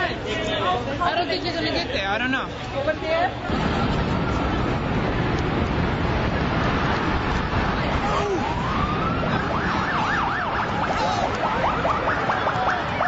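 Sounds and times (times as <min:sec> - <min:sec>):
street noise: 0:00.0 - 0:13.0
emergency vehicle siren: 0:03.6 - 0:13.0.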